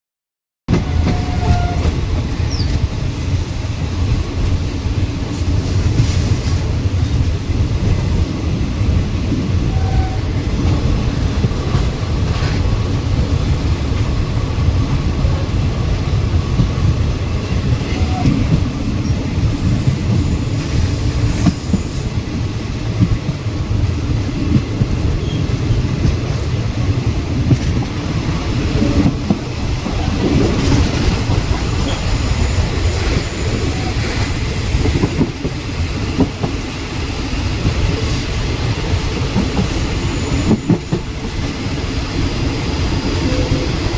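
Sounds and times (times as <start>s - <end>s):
train carriage rumble: 0.7s - 43.9s.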